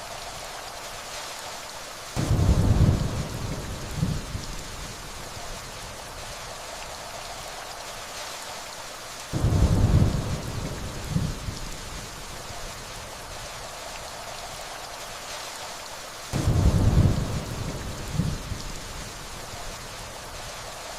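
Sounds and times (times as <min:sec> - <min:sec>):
steady rain hissing: 0:00.0 - 0:20.9
distant thunder rumbling: 0:02.2 - 0:04.5, 0:09.4 - 0:11.9, 0:16.4 - 0:18.7.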